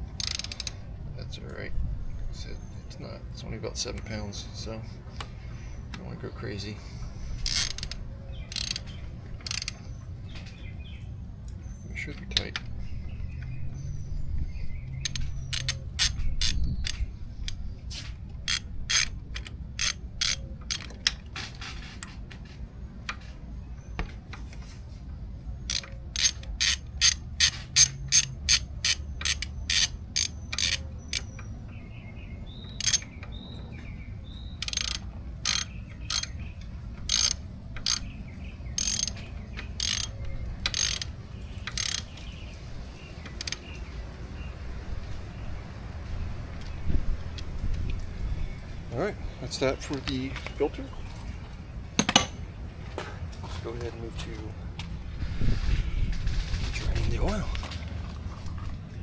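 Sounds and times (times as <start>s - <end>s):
hand ratchet clicking: 0.0s - 0.8s, 7.4s - 9.8s, 15.0s - 17.6s, 18.5s - 20.9s, 25.7s - 31.4s, 32.8s - 33.1s, 34.6s - 36.4s, 37.0s - 38.1s, 38.8s - 42.3s, 43.3s - 43.7s.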